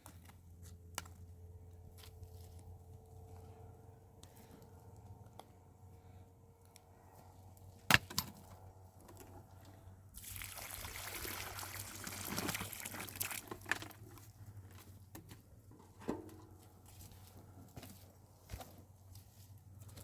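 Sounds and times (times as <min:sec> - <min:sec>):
water pouring out: 0:10.2 - 0:13.9.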